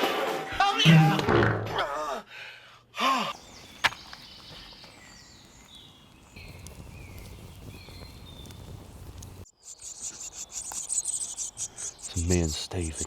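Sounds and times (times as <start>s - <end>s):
birds whistling: 3.3s - 13.0s.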